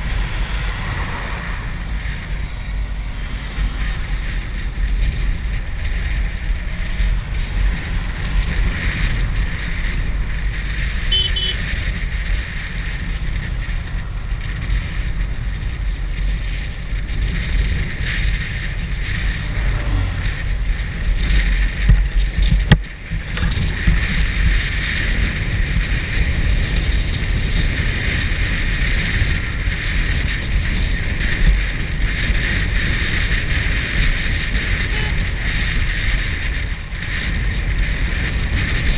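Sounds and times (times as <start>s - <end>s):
low rumble and road noise: 0.0s - 38.9s
wind buffeting microphone: 0.0s - 38.9s.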